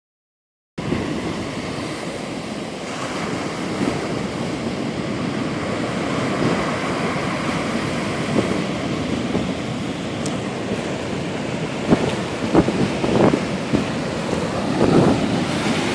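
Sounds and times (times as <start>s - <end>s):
sea surf breaking on shore: 0.8s - 15.9s
wind buffeting microphone: 0.8s - 15.9s.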